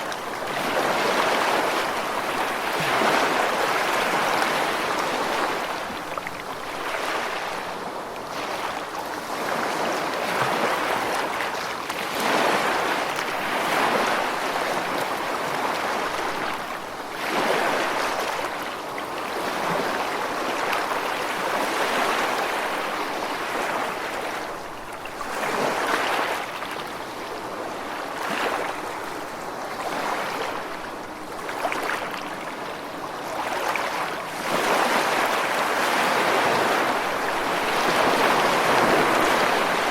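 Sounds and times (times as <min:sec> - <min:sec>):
ocean waves washing on shore: 0:00.0 - 0:39.9.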